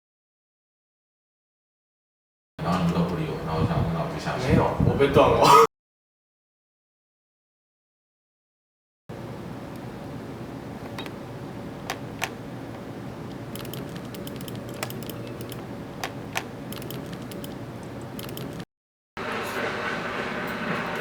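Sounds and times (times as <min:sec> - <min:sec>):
electrical hum: 0:02.6 - 0:05.7, 0:09.1 - 0:21.0
sharp clicks: 0:13.3 - 0:18.6.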